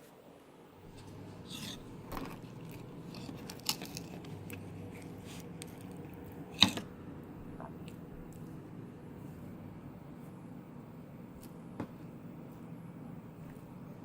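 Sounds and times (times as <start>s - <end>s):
handling scrapes and clicks: 0.9s - 6.8s.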